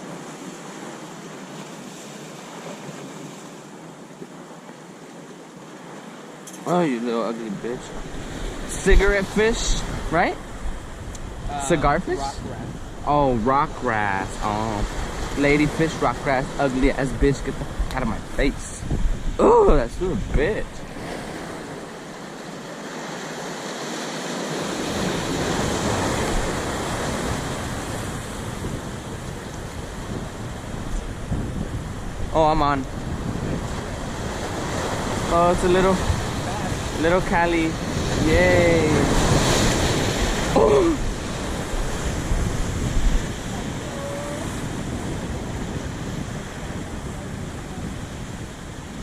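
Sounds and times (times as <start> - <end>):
ocean surf on rocky shore: 0.0 - 49.0
wind rumbling on microphone: 7.6 - 22.9, 24.5 - 49.0.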